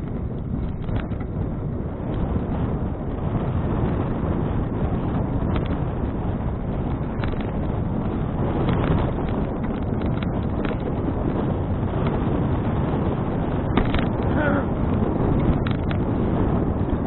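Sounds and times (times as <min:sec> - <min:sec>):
wind buffeting microphone: 0:00.0 - 0:17.0
clicks and rattles: 0:00.4 - 0:01.3, 0:06.9 - 0:07.7, 0:08.6 - 0:11.1, 0:13.7 - 0:14.4, 0:15.4 - 0:16.0.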